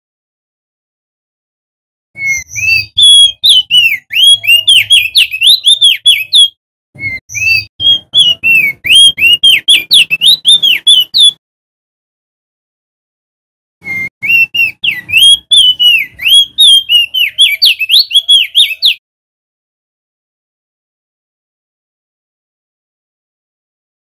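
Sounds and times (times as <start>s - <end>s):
bird singing high whistled notes: 2.2s - 11.4s, 13.8s - 19.0s.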